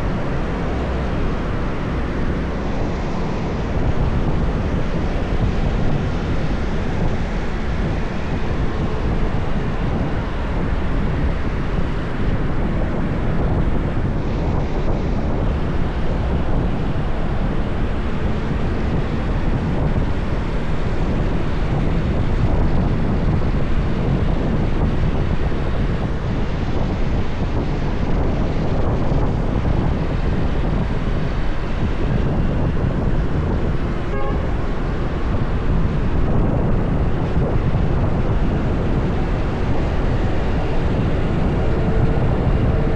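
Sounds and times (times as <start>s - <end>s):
road noise: 0.0s - 42.9s
wind on microphone: 0.0s - 42.9s.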